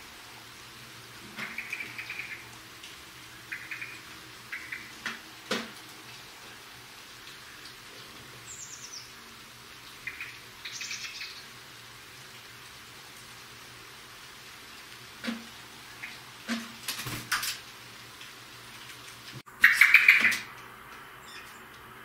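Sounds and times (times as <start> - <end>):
birds chirping: 1.4 - 2.5, 3.4 - 5.0, 8.4 - 9.2, 10.0 - 11.5, 19.6 - 21.7
bird trill: 3.5 - 4.9.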